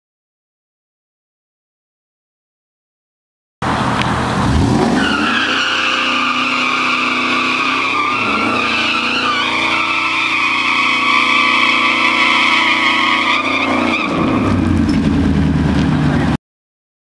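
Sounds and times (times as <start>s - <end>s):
engine revving high: 3.6s - 16.4s
tyres squealing: 4.9s - 14.9s.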